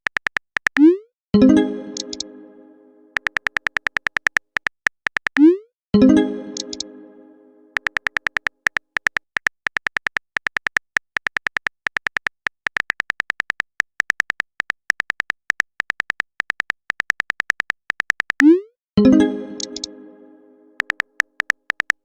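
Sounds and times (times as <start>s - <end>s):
phone keyboard typing clicks: 0.0s - 1.0s, 2.0s - 2.2s, 3.2s - 5.5s, 6.6s - 6.9s, 7.8s - 18.6s, 19.6s - 19.9s, 20.8s - 22.0s.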